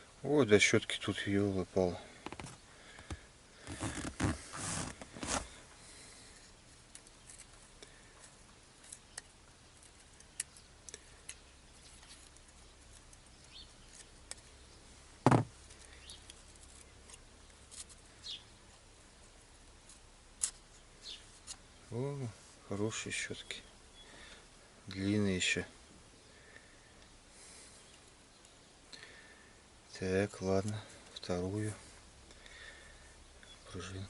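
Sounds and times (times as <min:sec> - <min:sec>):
scraping and rustling: 0:02.2 - 0:05.6.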